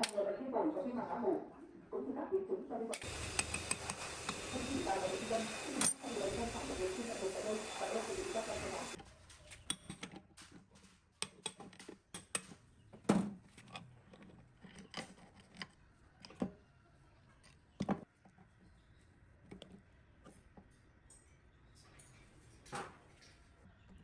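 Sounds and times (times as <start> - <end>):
hand tools and metal parts clicking: 3.0 - 6.2.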